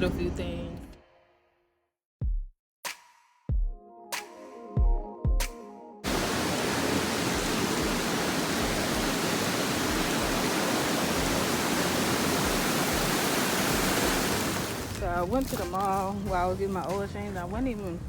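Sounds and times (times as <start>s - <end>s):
electronic music with drum hits: 2.2s - 5.8s
steady rushing noise: 6.1s - 15.0s.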